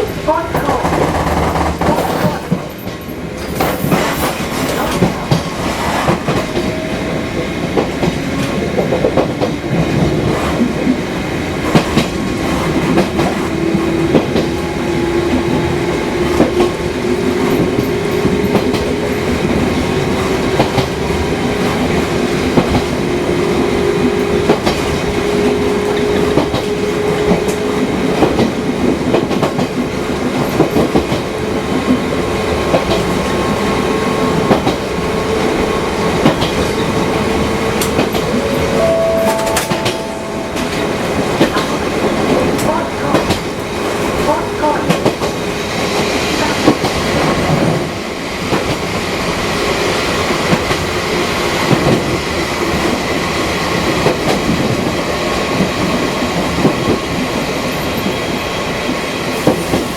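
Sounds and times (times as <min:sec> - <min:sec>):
wheels clicking over rail joints: 0:00.0 - 0:06.7.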